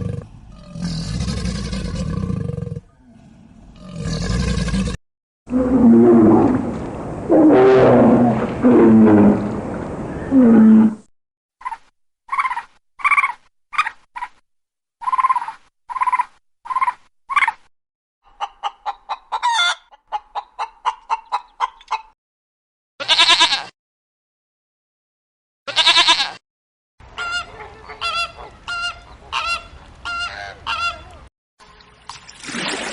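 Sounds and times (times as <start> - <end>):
animal roar: 0.0 - 9.6, 10.2 - 11.1
fowl clucking: 15.0 - 17.6, 18.3 - 22.2, 27.2 - 31.0
squawk: 27.2 - 31.1.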